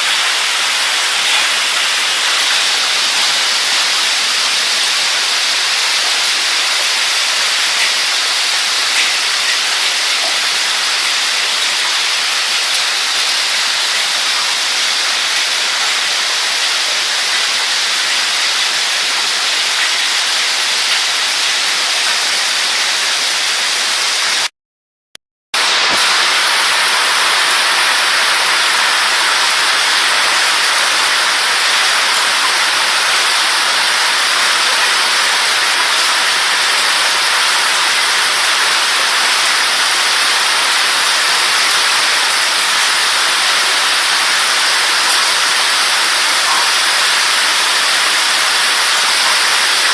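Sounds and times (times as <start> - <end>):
hail and heavy rain: 0.0 - 24.4, 25.6 - 49.9.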